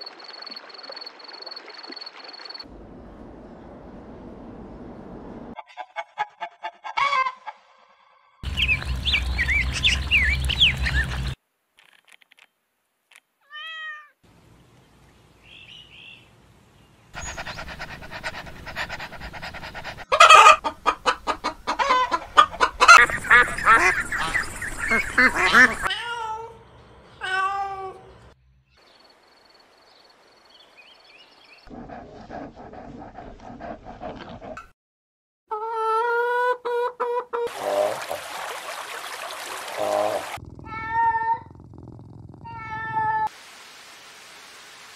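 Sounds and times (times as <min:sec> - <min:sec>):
high chirping animal calls: 0:21.7 - 0:25.9.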